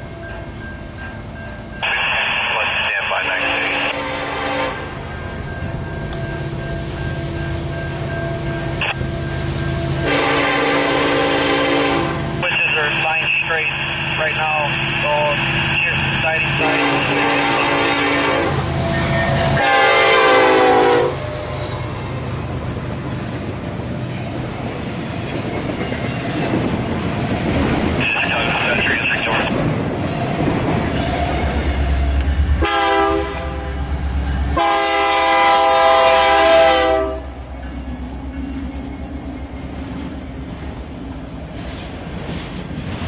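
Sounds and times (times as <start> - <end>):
locomotive horn blasts: 3.3 - 4.9, 10.0 - 13.2, 16.3 - 18.7, 19.4 - 21.3, 32.6 - 33.7, 34.6 - 37.3.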